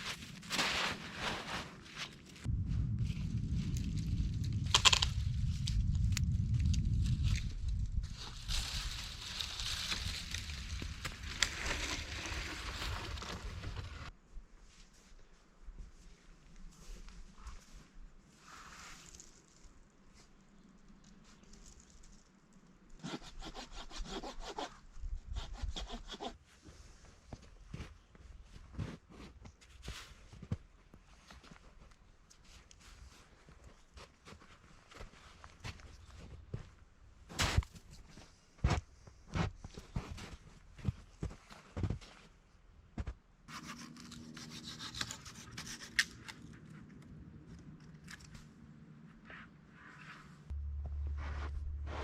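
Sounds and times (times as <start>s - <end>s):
rubbing scraping with crackles: 3.4s - 14.1s
hand saw cutting wood: 43.5s - 46.3s.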